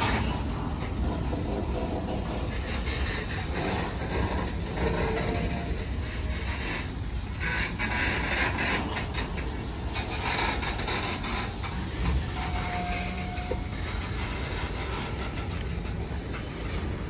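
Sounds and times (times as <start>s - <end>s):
train wheels rumbling on rails: 0.0s - 17.0s
clicks and clacks: 7.4s - 17.0s.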